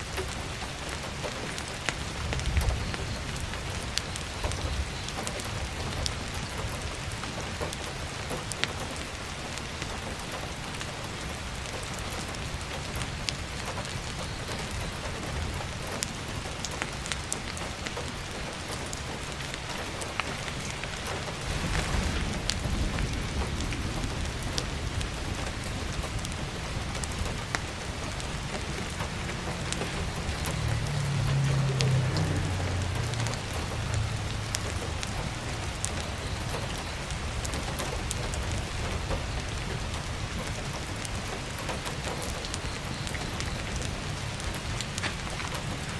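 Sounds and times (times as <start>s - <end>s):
firewood crackling: 0.0s - 45.9s
heavy rain falling: 0.0s - 45.9s
low rumble: 21.3s - 37.3s.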